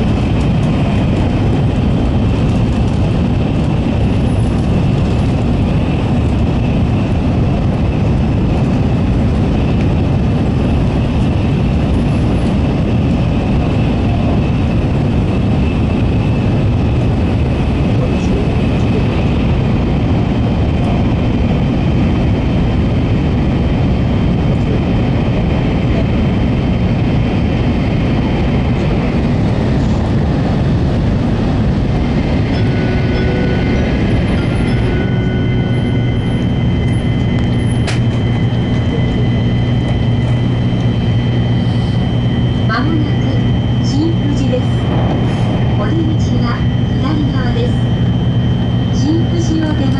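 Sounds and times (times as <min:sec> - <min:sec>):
train wheels rumbling on rails: 0:00.0 - 0:49.9
faint high whine: 0:31.8 - 0:49.9.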